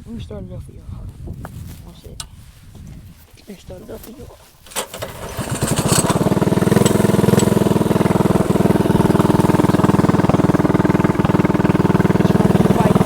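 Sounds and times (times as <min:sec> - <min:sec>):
small engine idling: 0:04.6 - 0:13.0.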